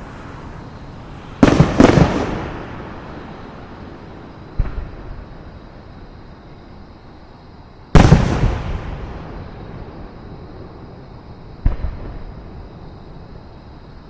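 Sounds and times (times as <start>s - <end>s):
fireworks shells booming: 0.0s - 5.6s, 8.0s - 10.4s.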